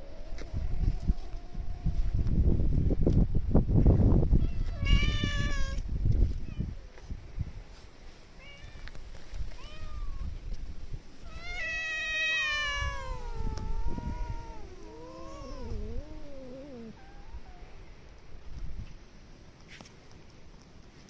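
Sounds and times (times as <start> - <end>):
cat meowing: 4.4 - 5.8, 9.6 - 10.3, 11.3 - 17.8.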